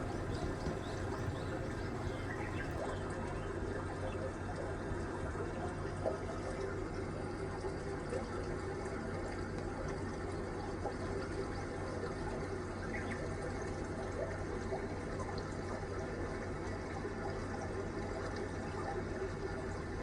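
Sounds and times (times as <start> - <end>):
running water: 0.0 - 3.3
faint low hum: 0.0 - 3.6.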